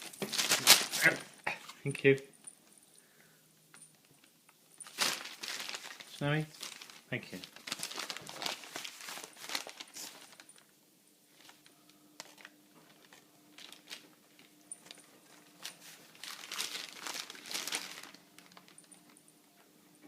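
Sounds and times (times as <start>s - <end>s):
newspaper rustling and crinkling: 0.0s - 1.2s, 4.8s - 10.6s, 11.3s - 19.2s.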